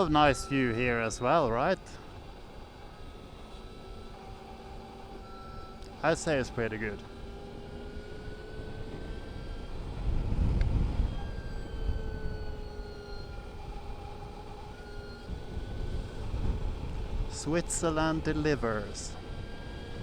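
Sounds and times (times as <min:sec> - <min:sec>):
electric motor whine: 0:00.0 - 0:20.0
wind and road noise: 0:00.0 - 0:20.0.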